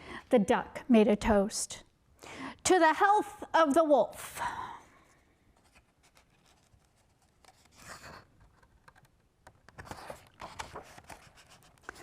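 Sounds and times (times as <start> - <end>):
paper pages rustling: 5.6 - 12.0.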